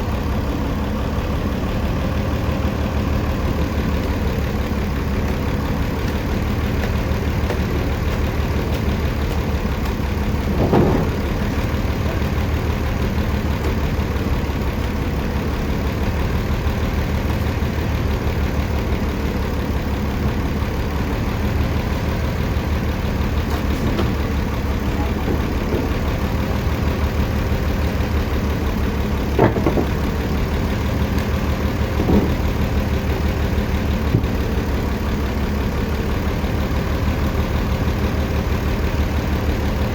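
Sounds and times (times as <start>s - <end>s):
sawmill engine low throb: 0.0s - 39.9s
short knocks and clatters: 6.0s - 12.2s, 23.5s - 24.3s, 29.2s - 30.3s, 31.2s - 32.6s.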